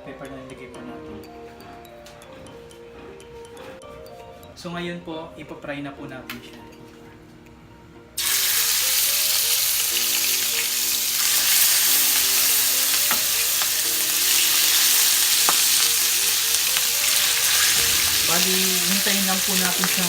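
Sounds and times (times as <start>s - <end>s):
fish sizzling in hot oil: 8.2s - 20.0s.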